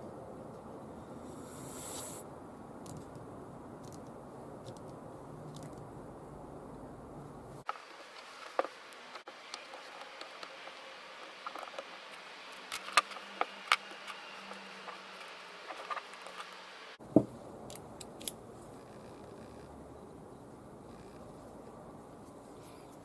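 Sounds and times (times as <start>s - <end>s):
hard parts clicking: 7.7s - 17.0s.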